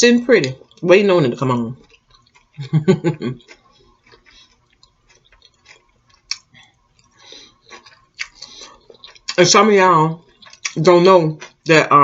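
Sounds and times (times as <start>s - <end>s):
quiet chewing: 1.8s - 9.4s, 10.2s - 10.8s
wet mouth clicks: 3.2s - 9.4s.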